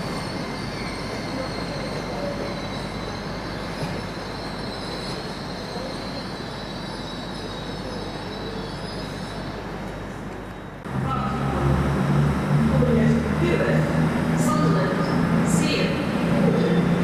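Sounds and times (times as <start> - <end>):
train wheel squeal: 0.0 - 10.8, 14.5 - 17.0
train wheels rumbling on track: 0.0 - 17.0.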